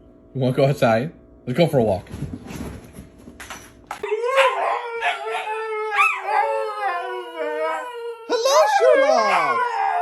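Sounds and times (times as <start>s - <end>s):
dog howling: 4.0s - 10.0s.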